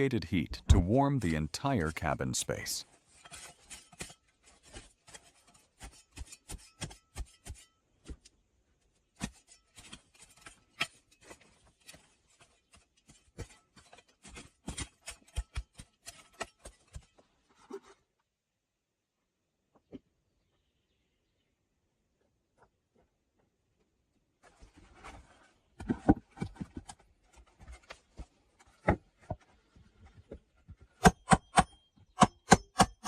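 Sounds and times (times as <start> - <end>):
scrapes and knocks of woodwork: 24.4 - 31.1.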